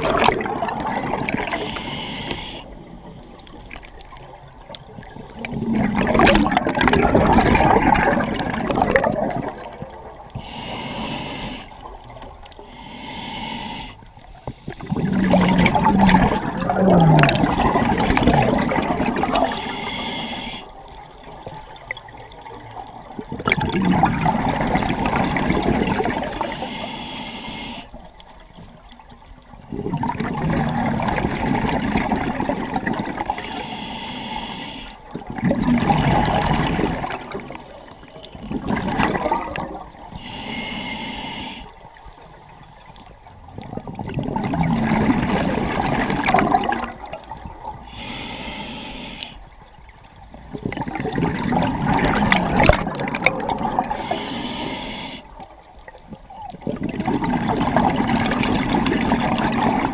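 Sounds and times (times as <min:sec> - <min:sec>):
rush of exhaust bubbles: 0:00.0 - 0:01.6, 0:05.4 - 0:10.0, 0:14.7 - 0:19.6, 0:23.2 - 0:26.6, 0:29.7 - 0:33.4, 0:35.1 - 0:37.5, 0:38.4 - 0:40.1, 0:43.6 - 0:47.6, 0:50.5 - 0:54.2, 0:56.5 - 0:59.9
regulator hissing inhale: 0:01.5 - 0:02.9, 0:10.4 - 0:15.6, 0:19.4 - 0:20.8, 0:26.1 - 0:28.0, 0:33.4 - 0:35.1, 0:37.1 - 0:38.4, 0:40.1 - 0:43.2, 0:47.8 - 0:49.5, 0:53.9 - 0:55.4.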